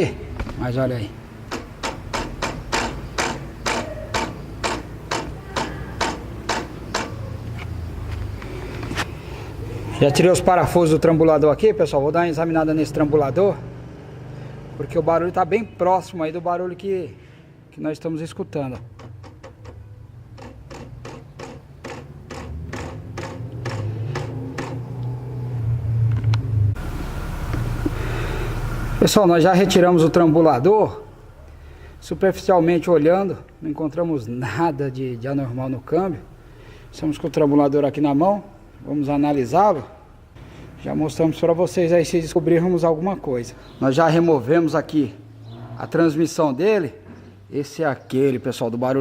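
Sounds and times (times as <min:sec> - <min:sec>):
sharp knocks: 0:01.5 - 0:07.2, 0:18.9 - 0:25.0
short metallic clicks and taps: 0:01.5 - 0:07.7
low steady hum: 0:25.1 - 0:40.8.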